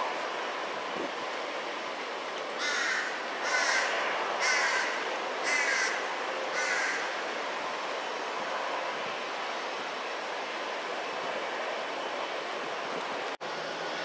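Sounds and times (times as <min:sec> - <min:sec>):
aircraft noise hiss: 0:00.0 - 0:14.0
bird cawing: 0:02.6 - 0:07.2.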